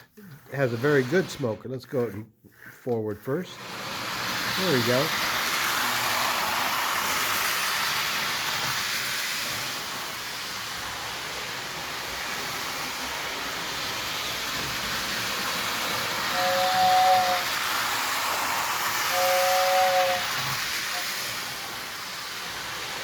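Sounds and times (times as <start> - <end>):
toy train motor whirring: 0.0 - 1.5, 3.5 - 23.0
two-note electric train whistle: 16.2 - 17.7, 19.0 - 21.3.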